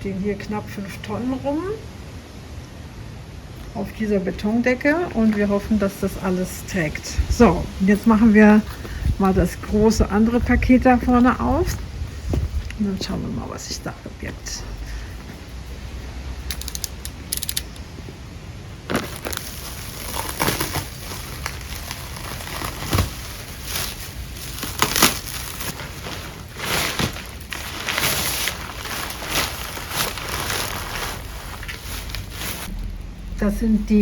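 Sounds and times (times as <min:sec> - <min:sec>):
packaging being torn open: 0:18.9 - 0:32.3.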